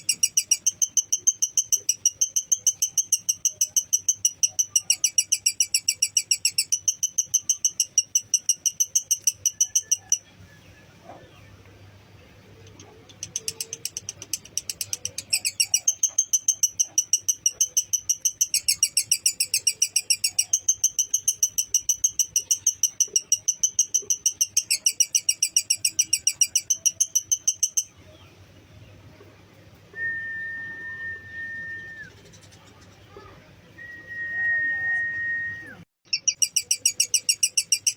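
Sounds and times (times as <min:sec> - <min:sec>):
bird chattering trill: 0:00.0 - 0:10.3, 0:12.6 - 0:28.0, 0:36.1 - 0:37.9.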